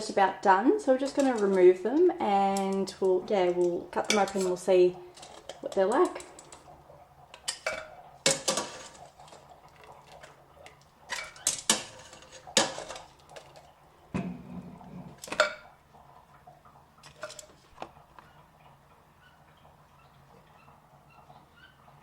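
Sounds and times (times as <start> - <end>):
utensils clattering against pot: 0.9 - 13.7, 15.1 - 15.7, 17.0 - 17.8.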